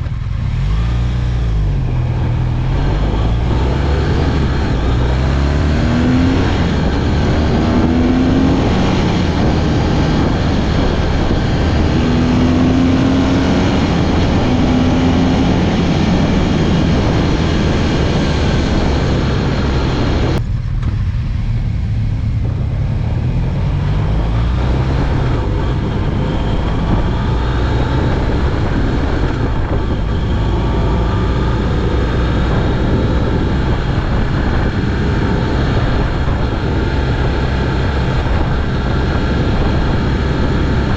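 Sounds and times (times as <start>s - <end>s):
motorcycle engine accelerating: 0.0s - 40.9s
wind noise: 0.0s - 40.9s.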